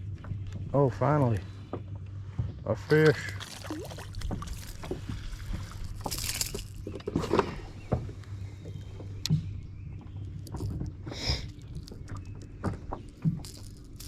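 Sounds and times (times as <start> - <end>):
steady low hum: 0.0 - 14.0
water splashing: 3.1 - 6.6
handling knocks and clicks: 4.2 - 14.0.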